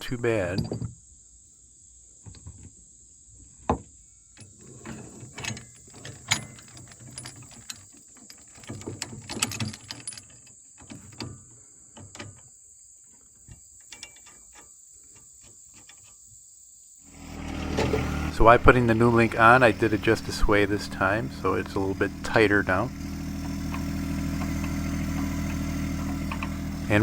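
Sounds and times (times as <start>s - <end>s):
crickets chirping: 1.0s - 27.0s
tools and steel parts knocking: 4.4s - 11.2s, 17.8s - 27.0s.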